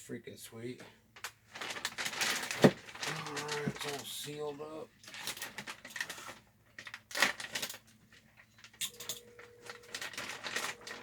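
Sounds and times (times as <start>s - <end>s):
packaging rustling: 1.5s - 11.0s.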